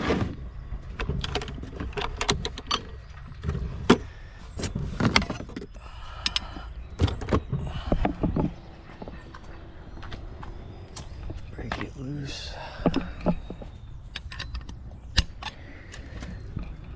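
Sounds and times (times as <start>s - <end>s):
metal tools clicking and clinking: 14.1s - 16.9s.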